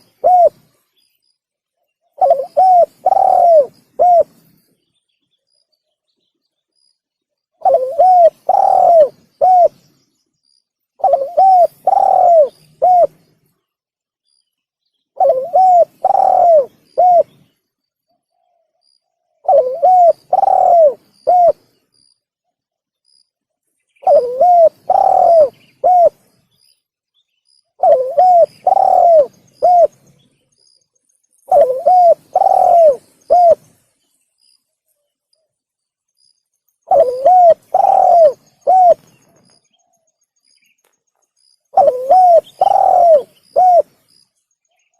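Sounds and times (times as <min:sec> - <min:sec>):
dove cooing: 0:00.0 - 0:00.8, 0:02.1 - 0:04.4, 0:07.6 - 0:09.9, 0:11.0 - 0:13.2, 0:15.2 - 0:17.4, 0:19.4 - 0:21.8, 0:24.0 - 0:26.3, 0:27.8 - 0:30.0, 0:31.5 - 0:33.7, 0:36.8 - 0:39.9, 0:41.7 - 0:44.0.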